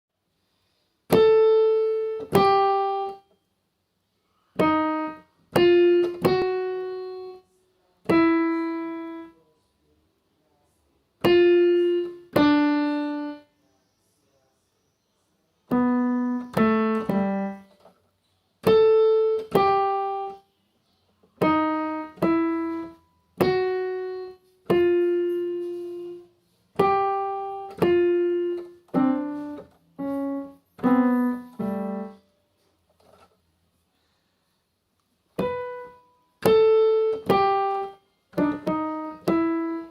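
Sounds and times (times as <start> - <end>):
keyboard playing slow melody: 1.1 - 3.3, 4.6 - 9.5, 11.2 - 13.5, 15.7 - 17.7, 18.6 - 20.5, 21.4 - 32.4, 35.3 - 39.9.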